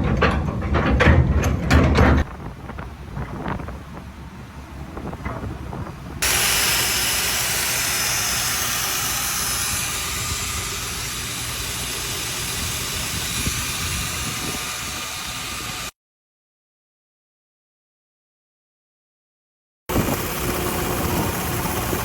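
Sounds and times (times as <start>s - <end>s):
welding arc hissing: 6.2s - 15.9s.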